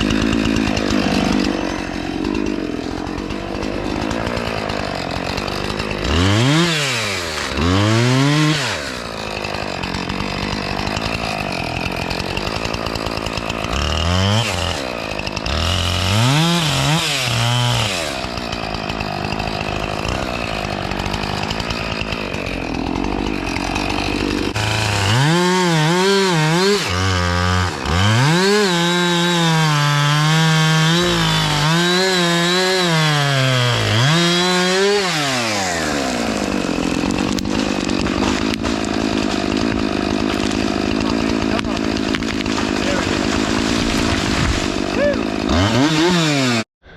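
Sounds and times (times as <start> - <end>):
chainsaw cutting: 0.0 - 46.9.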